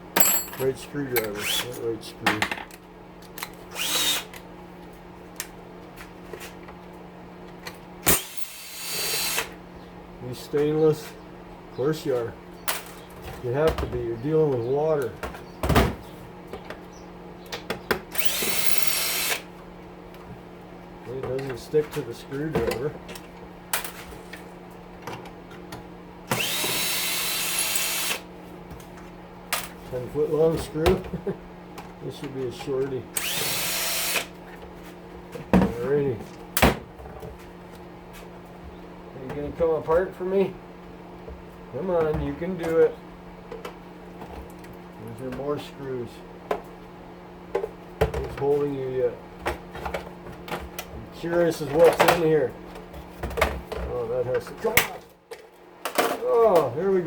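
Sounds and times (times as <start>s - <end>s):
stove fan humming: 0.0s - 57.0s
power screwdriver whirring: 3.7s - 4.3s, 8.1s - 9.5s, 18.2s - 19.5s, 26.3s - 28.2s, 33.2s - 34.3s.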